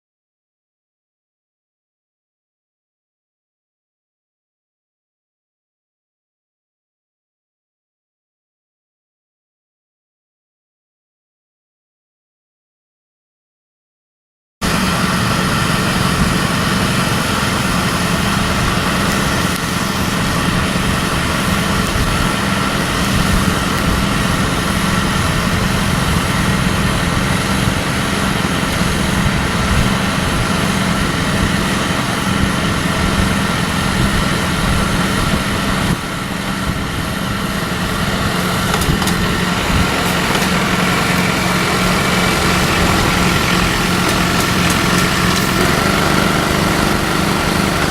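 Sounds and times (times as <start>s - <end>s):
engine humming: 14.6s - 47.9s.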